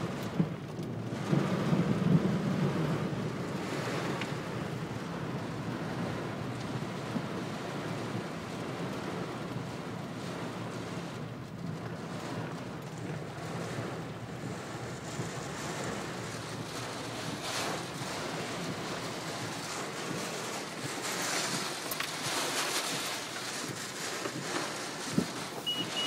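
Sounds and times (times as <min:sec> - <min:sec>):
rain rushing: 0:00.0 - 0:26.0
wind buffeting microphone: 0:10.4 - 0:26.0.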